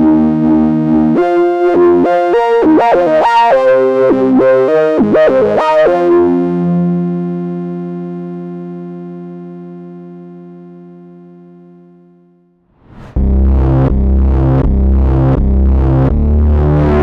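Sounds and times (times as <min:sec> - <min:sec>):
synthesizer chords and notes: 0:00.0 - 0:17.0.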